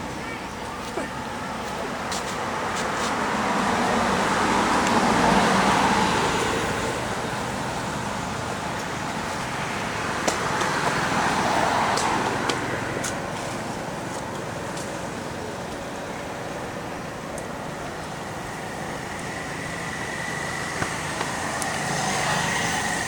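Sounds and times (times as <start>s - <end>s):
road traffic rushing past: 0.0s - 23.0s.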